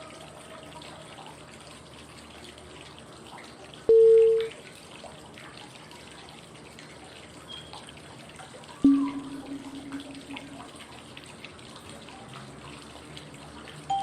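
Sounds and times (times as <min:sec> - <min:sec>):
flowing water: 0:00.0 - 0:14.0
electronic cue tone: 0:08.8 - 0:10.8.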